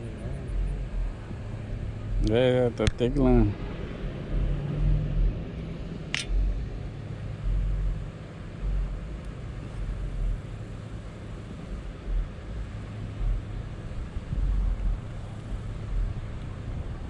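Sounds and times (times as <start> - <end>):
steady low hum: 0.0 - 17.0
wind buffeting microphone: 0.0 - 17.0.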